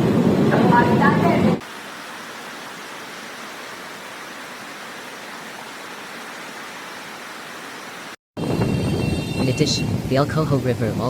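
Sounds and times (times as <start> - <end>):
floodwater rushing: 1.6 - 8.2.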